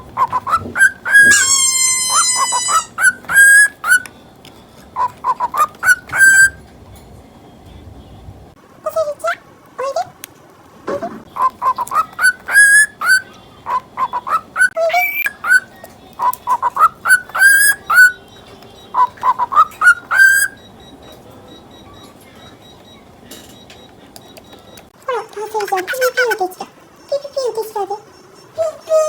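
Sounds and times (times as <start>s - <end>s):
cockatiel whistling and chirping: 0.2s - 4.1s, 5.0s - 6.6s, 11.4s - 20.9s.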